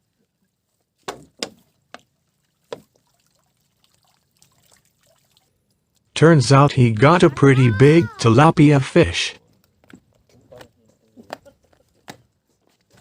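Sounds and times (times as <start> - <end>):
water splashing: 1.5 - 6.1.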